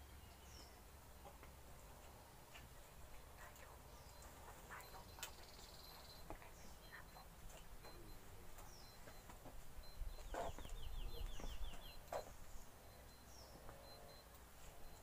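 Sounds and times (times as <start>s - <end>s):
faint bird chirps: 2.8s - 15.0s
bird trill: 7.8s - 14.3s.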